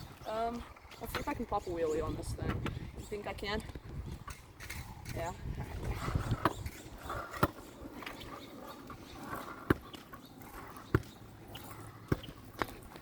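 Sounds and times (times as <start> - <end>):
wheels rolling: 0.0 - 13.0.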